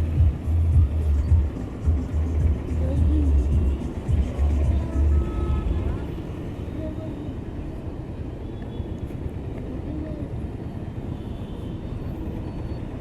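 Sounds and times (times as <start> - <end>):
motorcycle engine rumble: 0.0 - 6.1.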